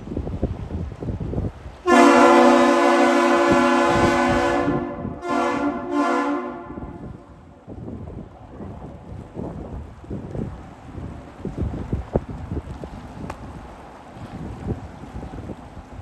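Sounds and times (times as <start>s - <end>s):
wind buffeting microphone: 0.0s - 16.0s
deep ship air horn: 1.8s - 7.6s.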